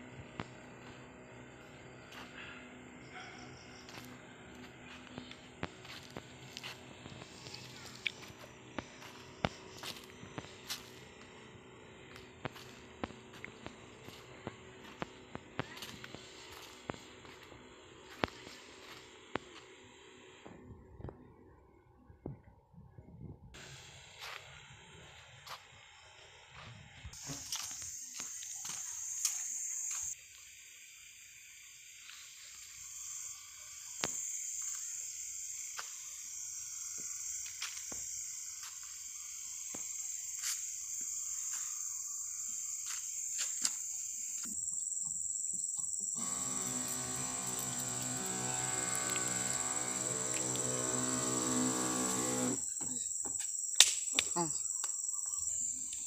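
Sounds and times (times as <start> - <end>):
low hum with overtones: 0.0 - 27.1
crickets trilling: 0.1 - 20.3, 23.6 - 56.0.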